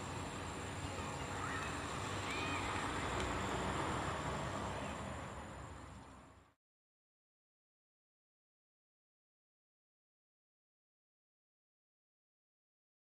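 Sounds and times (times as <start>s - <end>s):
outdoor background noise: 0.0s - 6.6s.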